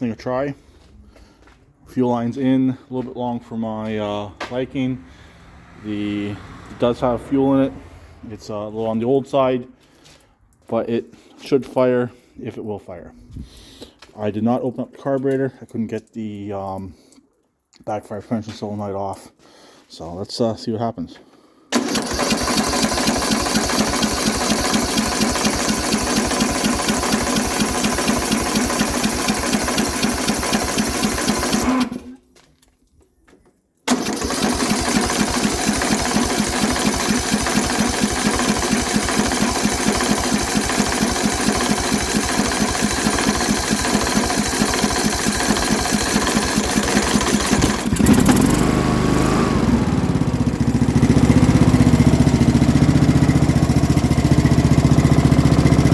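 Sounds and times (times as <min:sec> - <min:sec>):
lawn mower engine idling: 0:21.7 - 0:32.2, 0:33.9 - 0:55.9.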